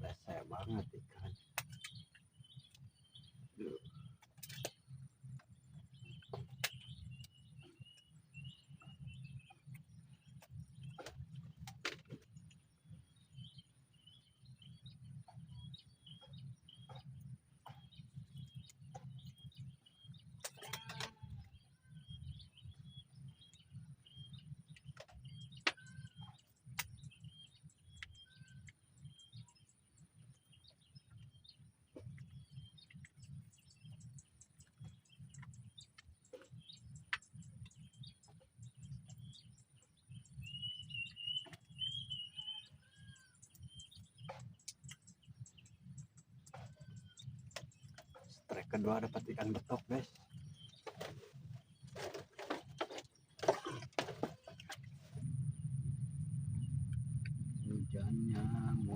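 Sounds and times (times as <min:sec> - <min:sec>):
small birds chirping: 0:00.0 - 0:58.9
low rumble: 0:54.9 - 0:58.9.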